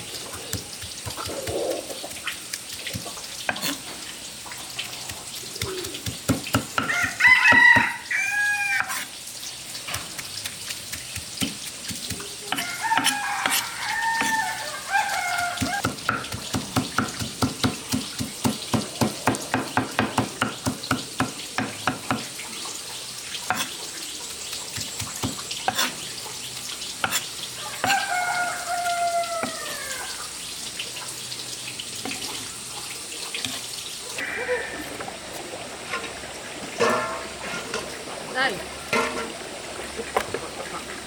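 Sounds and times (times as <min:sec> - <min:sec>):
rooster crowing: 0:06.8 - 0:09.0, 0:12.6 - 0:15.9, 0:27.6 - 0:30.3.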